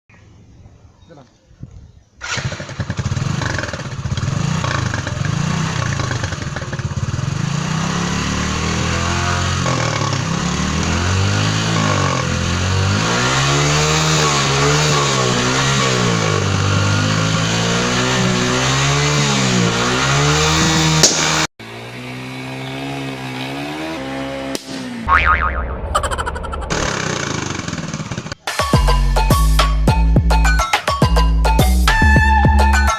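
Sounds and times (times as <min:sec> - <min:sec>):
motorcycle engine revving: 0:02.2 - 0:25.6, 0:26.5 - 0:28.4.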